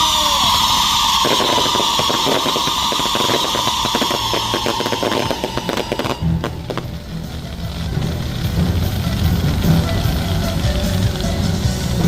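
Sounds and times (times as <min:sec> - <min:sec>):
firework whistle falling in pitch: 0:00.0 - 0:07.9
firecrackers crackling: 0:00.0 - 0:12.0.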